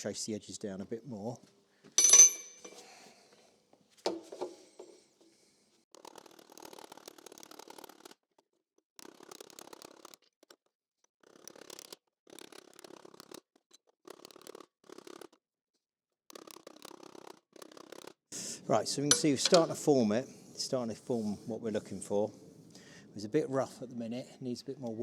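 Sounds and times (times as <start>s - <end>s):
air chisel hammering on steel: 19.1s - 20.0s.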